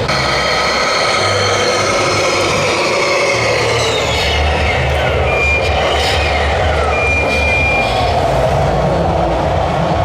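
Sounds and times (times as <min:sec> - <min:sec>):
model vehicle motors whining: 0:00.0 - 0:07.4
high reversing beep: 0:00.0 - 0:08.0
steady low hum: 0:00.0 - 0:09.8.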